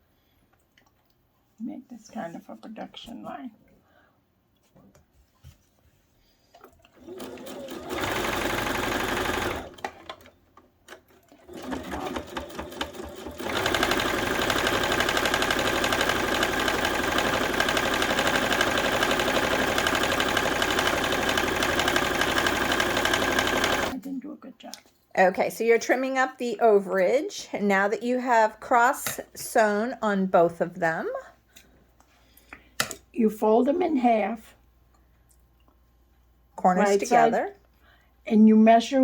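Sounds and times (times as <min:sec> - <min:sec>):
sewing machine stitching: 0:06.6 - 0:24.0.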